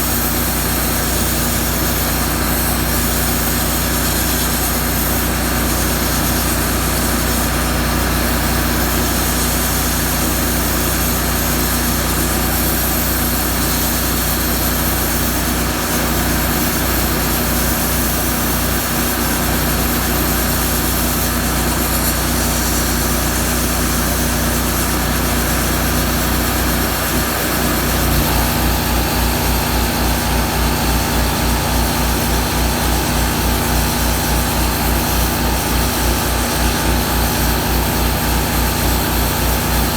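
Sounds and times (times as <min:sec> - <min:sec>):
plasma cutter hiss: 0:00.0 - 0:39.9
generator engine revving: 0:25.0 - 0:39.9.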